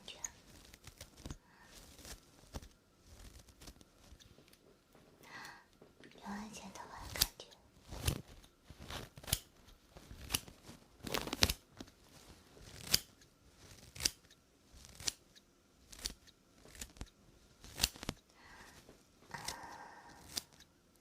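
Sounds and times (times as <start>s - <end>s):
scissors snipping hair: 7.0s - 12.0s, 12.6s - 18.2s, 19.4s - 20.7s.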